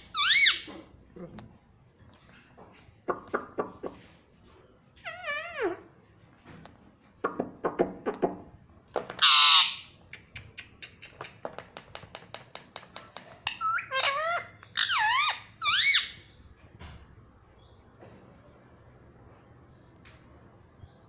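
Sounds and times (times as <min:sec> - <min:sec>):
parrot screeching: 0:00.1 - 0:00.7, 0:05.0 - 0:05.8, 0:09.2 - 0:09.9, 0:13.4 - 0:16.2.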